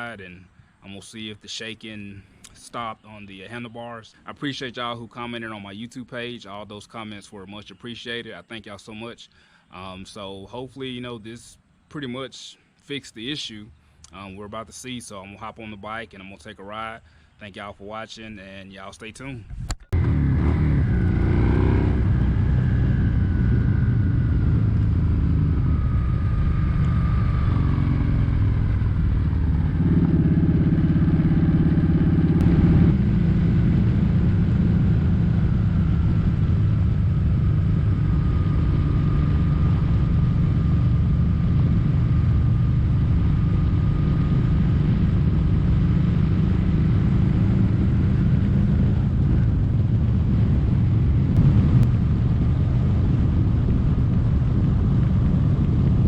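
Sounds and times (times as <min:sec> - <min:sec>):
motorcycle engine running: 0:19.9 - 0:56.0.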